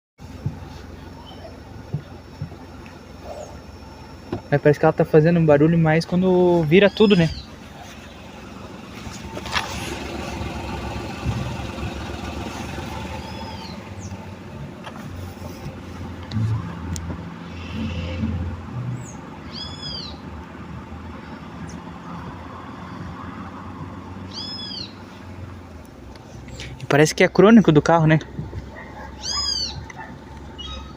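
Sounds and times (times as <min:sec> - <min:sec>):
steering groaning and knocking: 0:00.2 - 0:19.2, 0:21.7 - 0:26.9
car engine running: 0:00.2 - 0:30.9.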